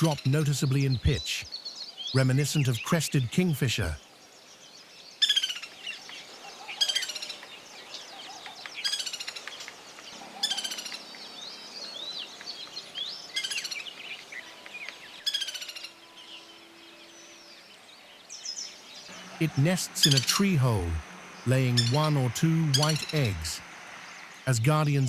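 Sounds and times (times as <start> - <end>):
woodpecker rattling calls: 0.0 - 0.4, 5.2 - 16.3, 18.6 - 24.5
birds chirping softly: 0.0 - 25.0.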